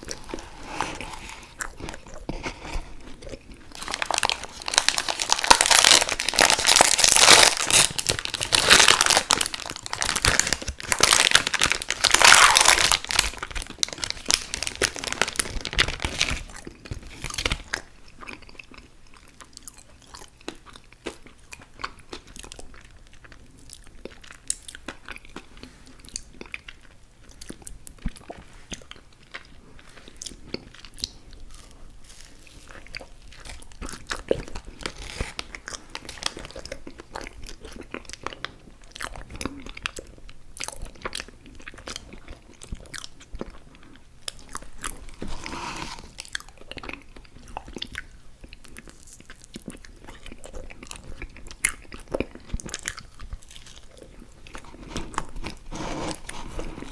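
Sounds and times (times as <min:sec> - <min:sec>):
person chewing food: 0:00.0 - 0:56.9.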